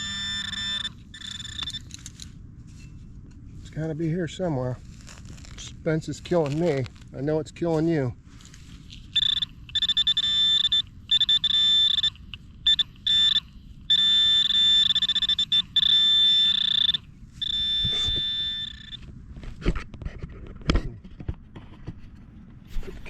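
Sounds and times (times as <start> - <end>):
metal detector pinpointer buzzing: 0.0 - 2.0, 9.0 - 19.1.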